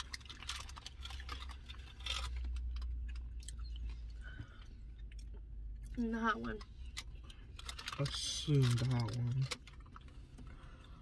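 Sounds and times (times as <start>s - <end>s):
chewing and biting food: 0.0s - 6.0s
crackly handling noises: 0.0s - 11.0s
low steady hum: 0.0s - 11.0s.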